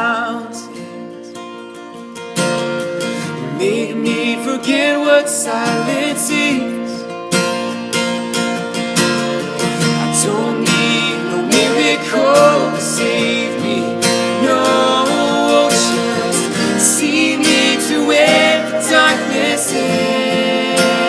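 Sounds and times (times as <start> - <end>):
strummed acoustic guitar: 0.0 - 21.0.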